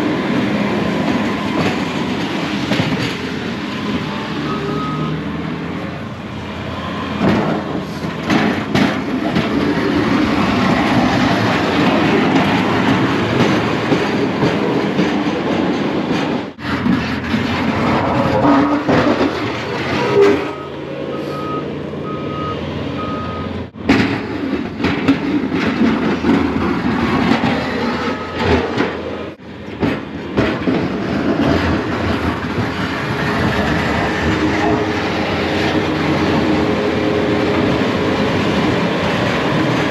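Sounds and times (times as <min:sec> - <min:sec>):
plow blade scraping pavement: 0:00.0 - 0:39.9
truck engine under load: 0:00.0 - 0:39.9
short beeps: 0:20.5 - 0:23.6.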